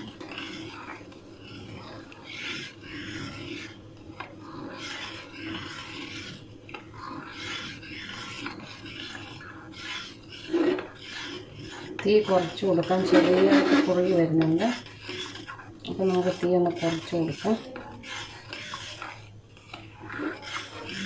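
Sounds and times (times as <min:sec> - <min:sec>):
spoon scraping a pan: 0:00.0 - 0:21.0.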